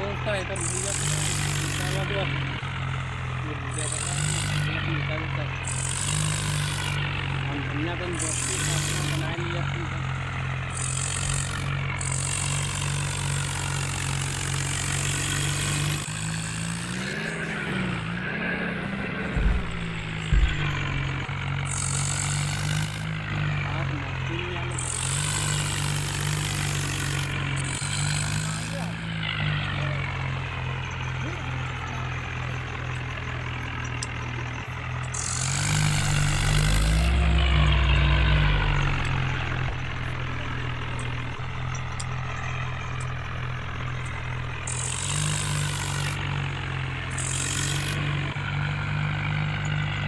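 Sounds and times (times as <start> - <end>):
tractor engine running: 0.0 - 50.0.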